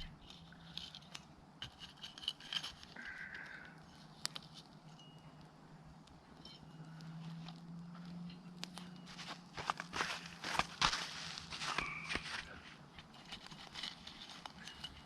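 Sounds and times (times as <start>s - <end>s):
scraping: 0.0s - 5.0s, 6.4s - 15.0s.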